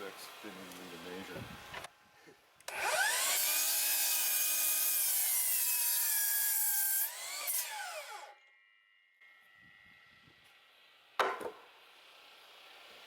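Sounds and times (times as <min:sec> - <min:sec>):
power saw cutting wood: 0:00.0 - 0:01.9, 0:02.6 - 0:08.5.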